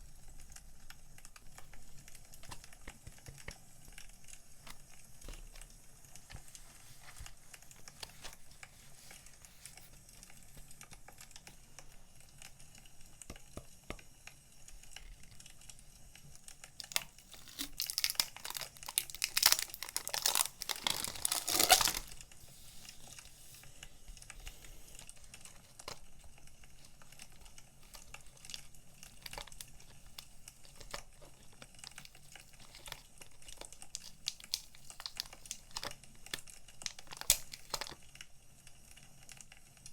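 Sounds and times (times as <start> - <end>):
paper and plastic packaging crinkling: 0.0 - 14.0, 14.7 - 38.3
wood fire crackling: 0.3 - 39.9
packaging tearing: 16.8 - 38.0.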